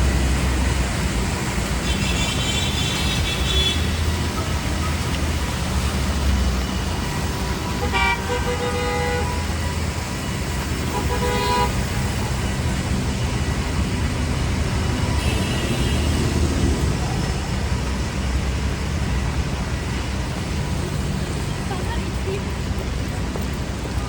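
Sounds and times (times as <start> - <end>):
traffic rumble: 0.0 - 24.0
car horn toot: 1.9 - 4.0, 7.6 - 9.5, 10.9 - 11.9, 15.2 - 16.3.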